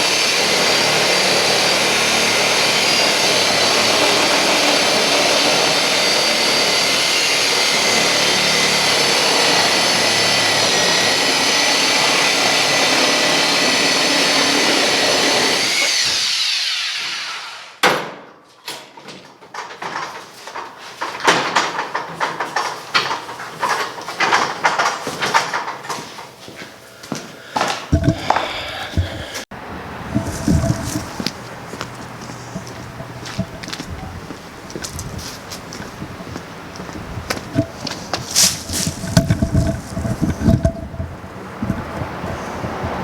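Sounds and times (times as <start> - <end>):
power tool whining: 0.0 - 17.8, 27.9 - 29.5, 30.1 - 43.0.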